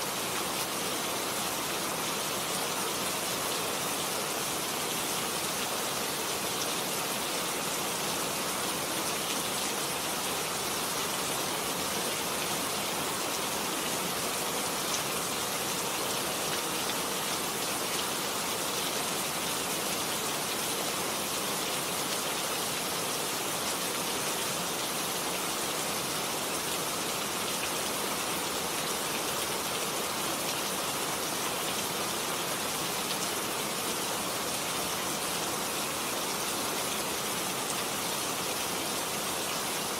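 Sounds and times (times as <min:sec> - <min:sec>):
heavy rain on plants: 0:00.0 - 0:39.9.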